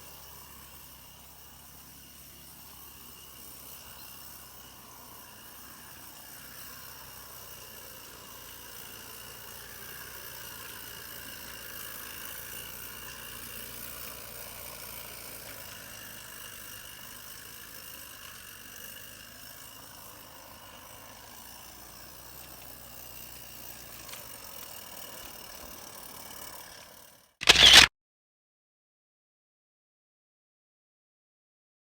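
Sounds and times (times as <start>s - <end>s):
loud burst: 27.4s - 27.9s.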